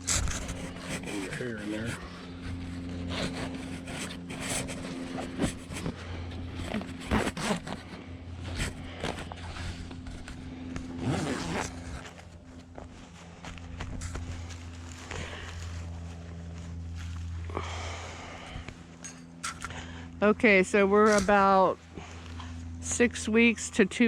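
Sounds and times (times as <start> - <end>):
zipper zipping: 0.0 - 12.9
cloth rustling and scraping: 0.0 - 17.4
steady low hum: 0.0 - 24.0.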